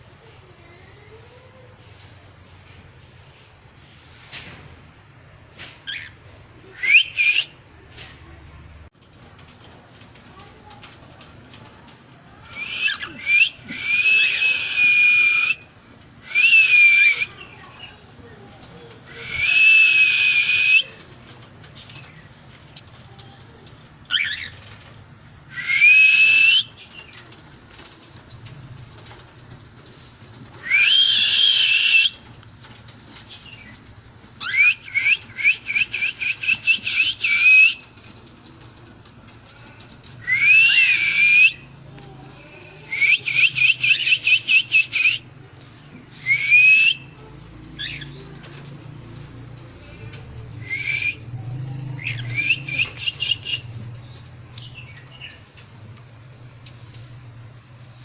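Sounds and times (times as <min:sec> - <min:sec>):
cockatiel whistles: 0:30.6 - 0:32.1.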